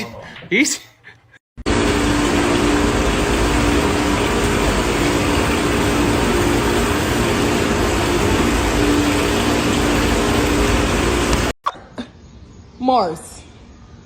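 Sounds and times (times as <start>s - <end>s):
loud mechanical running noise: 1.6s - 11.6s.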